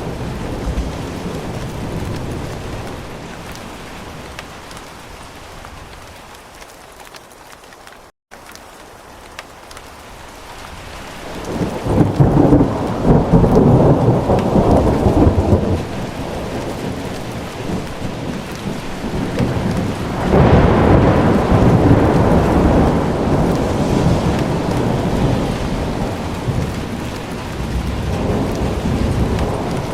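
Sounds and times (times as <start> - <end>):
steady rain: 0.0 - 29.9
rolling thunder: 11.4 - 29.9.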